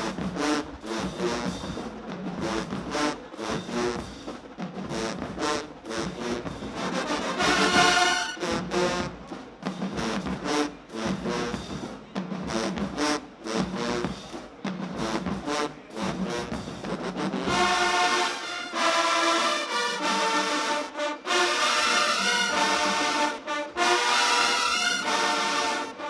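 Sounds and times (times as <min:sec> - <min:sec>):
marching band ensemble hits: 0:00.0 - 0:26.0
brass sustained chords: 0:05.8 - 0:09.1, 0:17.5 - 0:26.0.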